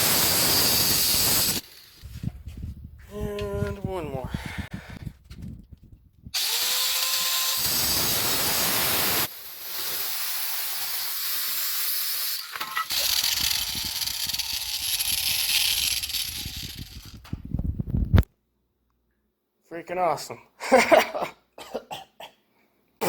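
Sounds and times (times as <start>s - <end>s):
power tool cutting metal tubing: 0.0s - 2.1s, 6.4s - 17.2s
motor whine spinning up: 12.9s - 17.2s.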